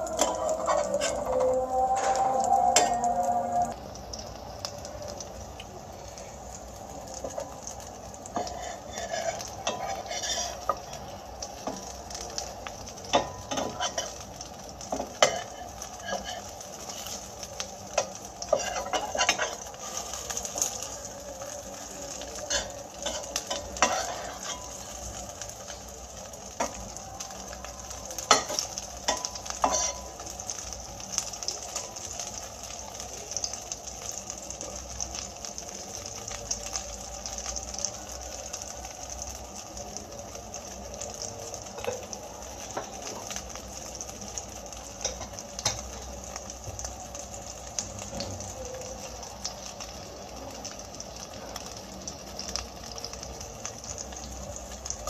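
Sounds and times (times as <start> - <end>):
food sizzling in oil: 0.0 - 55.0
metal utensils scraping a pan: 0.1 - 3.2, 8.4 - 10.9, 13.2 - 14.2, 14.9 - 17.3, 18.0 - 20.8, 22.4 - 25.0, 28.3 - 30.2.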